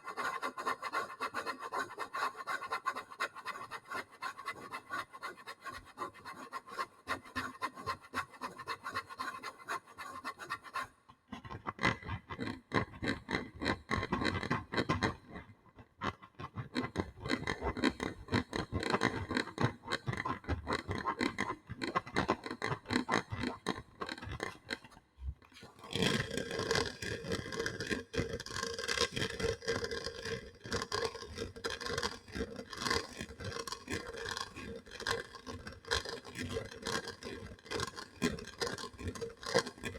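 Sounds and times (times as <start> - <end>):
scratching and rubbing on surfaces: 25.6 - 39.9.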